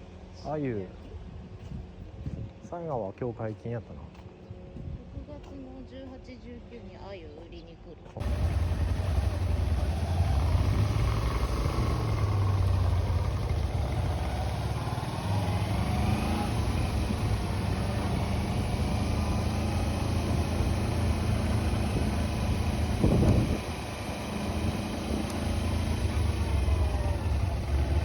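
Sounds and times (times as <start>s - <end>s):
vehicle engine humming: 8.2s - 28.0s.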